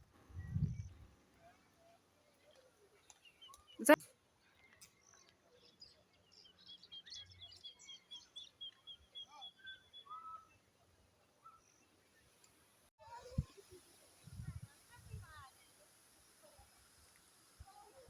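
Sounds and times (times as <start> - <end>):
faint birdsong chirps: 0.2 - 12.4.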